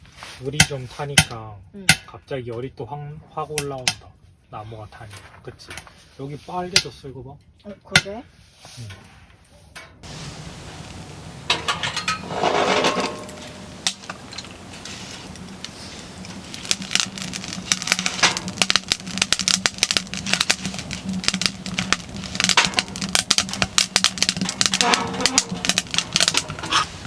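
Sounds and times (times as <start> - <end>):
firewood crackling and popping: 10.0 - 27.0
steady low hum: 10.0 - 27.0.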